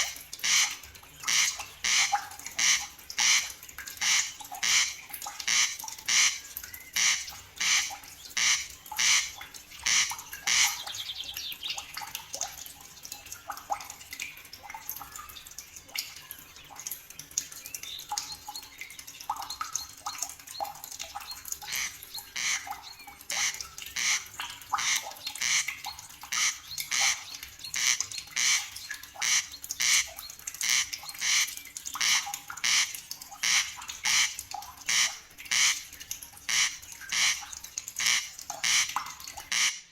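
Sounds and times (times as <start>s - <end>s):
bird squawking: 21.7s - 22.7s, 23.3s - 24.2s, 26.3s - 30.0s, 39.5s - 39.8s.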